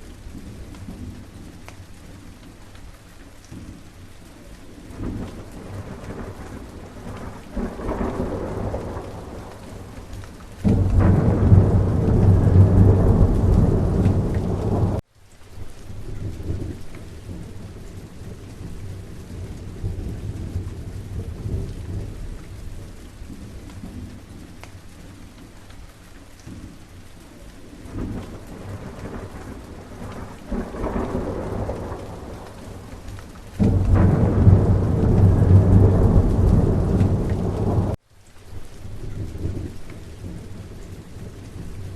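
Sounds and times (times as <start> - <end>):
steady rain: 0.0 - 41.9
rolling thunder: 4.9 - 15.0, 27.8 - 38.0.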